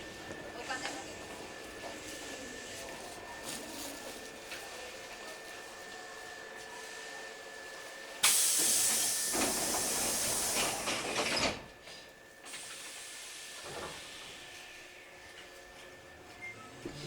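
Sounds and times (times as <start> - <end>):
loud hiss of compressed air: 8.2 - 11.6, 12.5 - 14.5.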